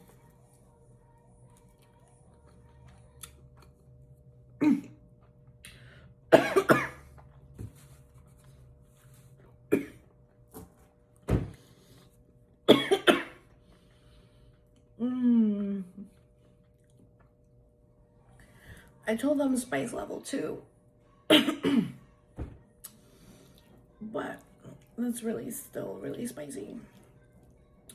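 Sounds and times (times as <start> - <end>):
person coughing: 4.6 - 5.0, 6.3 - 7.1, 9.7 - 10.0, 12.7 - 13.4, 21.3 - 22.0.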